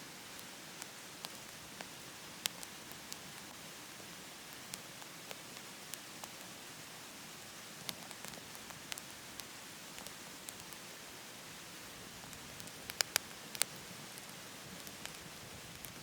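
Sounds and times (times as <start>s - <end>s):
firewood crackling in a stove: 0.0s - 16.0s.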